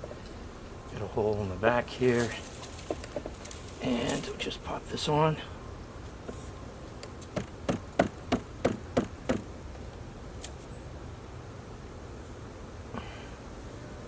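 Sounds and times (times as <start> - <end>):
honey bees humming: 0.0 - 14.0
sharp knocks on beehive: 2.7 - 3.5, 7.3 - 9.6.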